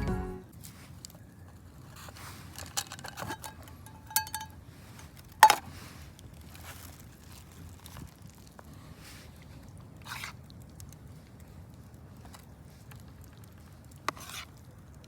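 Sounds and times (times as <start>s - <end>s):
objects clinking and tapping: 2.6s - 4.6s.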